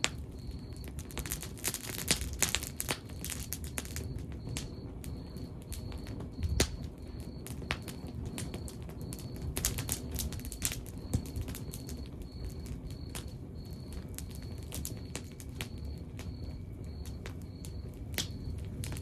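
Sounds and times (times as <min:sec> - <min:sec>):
log fire crackling: 0:00.0 - 0:19.0.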